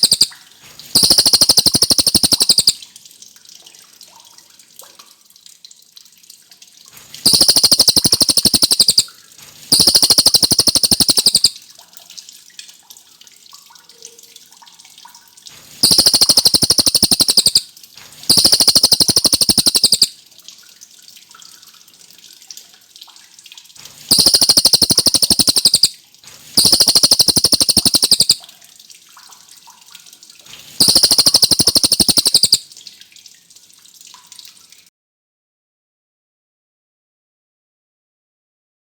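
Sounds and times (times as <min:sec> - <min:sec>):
songbird high-pitched trills: 0:00.0 - 0:00.4, 0:01.0 - 0:02.8, 0:07.2 - 0:09.1, 0:09.7 - 0:11.6, 0:15.8 - 0:17.6, 0:18.3 - 0:20.1, 0:24.1 - 0:26.0, 0:26.6 - 0:28.4, 0:30.8 - 0:32.6.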